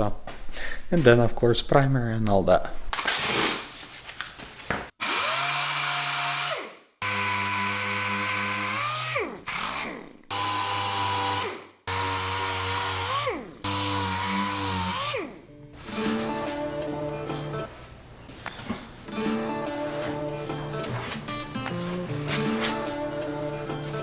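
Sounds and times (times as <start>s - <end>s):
power tool motor running in bursts: 5.0s - 16.1s.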